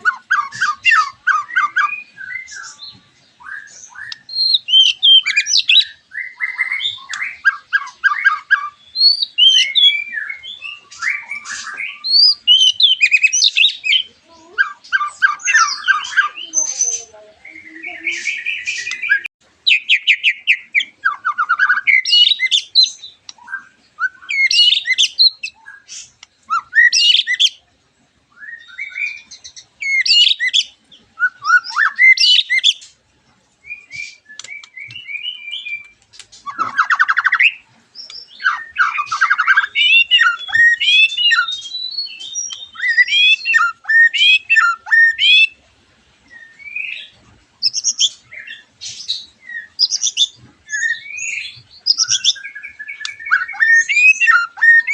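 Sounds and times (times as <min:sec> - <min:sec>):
birds singing whistled phrases: 0:00.0 - 0:27.7, 0:28.3 - 0:33.0, 0:33.6 - 0:54.9.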